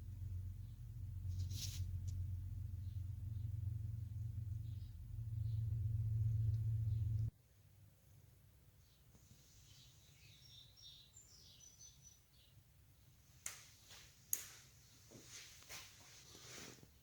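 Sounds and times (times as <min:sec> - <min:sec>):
faint bird chirps: 0:02.7 - 0:07.3, 0:08.8 - 0:13.2.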